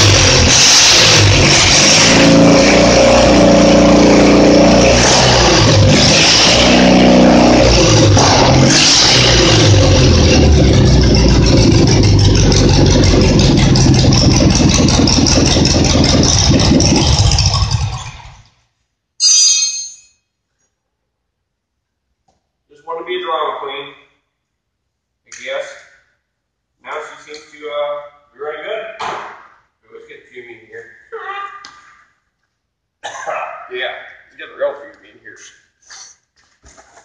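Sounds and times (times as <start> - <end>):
engine revving and running: 0.0 - 18.4.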